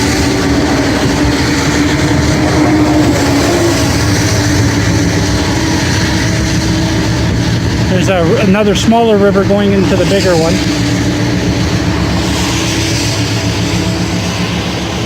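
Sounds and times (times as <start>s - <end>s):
droning tone: 0.0s - 15.0s
highway traffic in rain: 0.0s - 15.0s.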